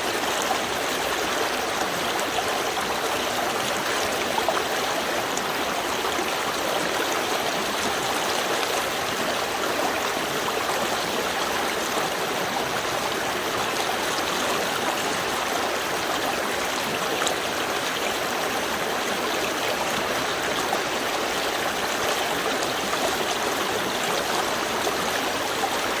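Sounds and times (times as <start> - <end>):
stream flowing: 0.0 - 26.0.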